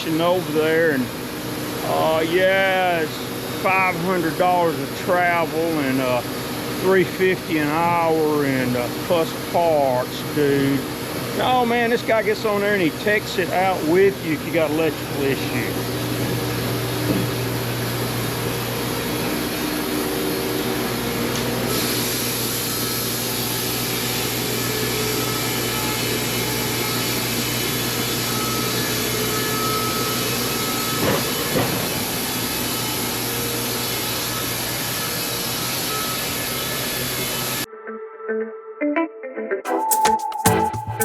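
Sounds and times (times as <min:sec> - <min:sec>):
sawmill hum: 0:00.0 - 0:37.7
band saw cutting log: 0:21.6 - 0:37.6.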